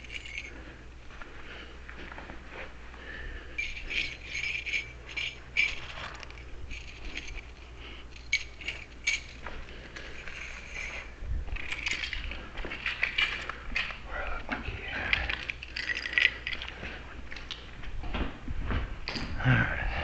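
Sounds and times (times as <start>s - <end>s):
keys jingling: 0.0s - 0.8s, 3.5s - 14.0s, 14.8s - 17.6s.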